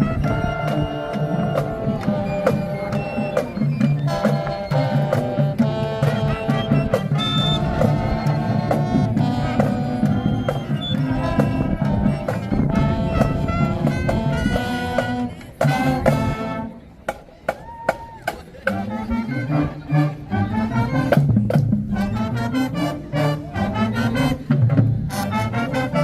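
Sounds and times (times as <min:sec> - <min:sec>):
bass drum and snares: 0:00.0 - 0:17.7
marching band horns: 0:00.0 - 0:26.0.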